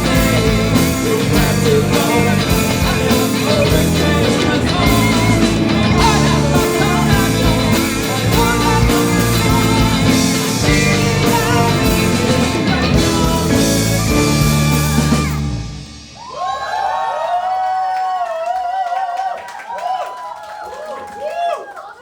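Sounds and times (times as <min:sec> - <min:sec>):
person singing: 0:00.0 - 0:15.8
live rock band playing: 0:00.0 - 0:16.2.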